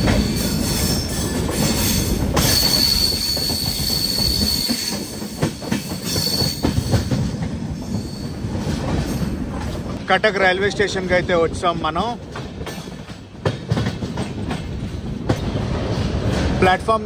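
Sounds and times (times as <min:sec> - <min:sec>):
high metallic squeal: 0:00.0 - 0:07.1
clanks over rail joints: 0:00.0 - 0:10.1, 0:11.9 - 0:17.0
train coaches rumbling: 0:00.0 - 0:17.0.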